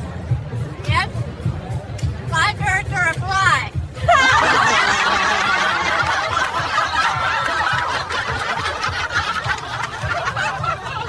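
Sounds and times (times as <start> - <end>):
people laughing and snickering: 4.0 - 11.0.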